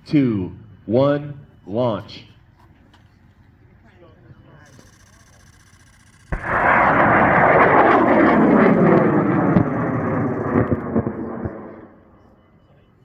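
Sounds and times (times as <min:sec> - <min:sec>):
rocket motor roaring: 0:06.2 - 0:12.1.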